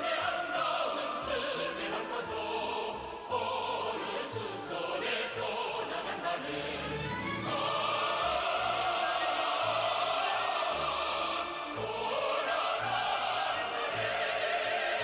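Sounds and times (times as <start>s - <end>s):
choir singing operatically: 0.0s - 15.0s
orchestra playing: 6.2s - 14.9s.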